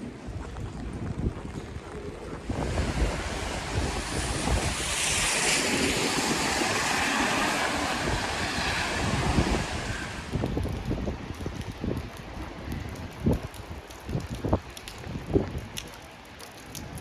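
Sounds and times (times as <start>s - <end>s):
wind buffeting microphone: 0.0s - 17.0s
rushing hiss of wet street: 2.4s - 15.5s.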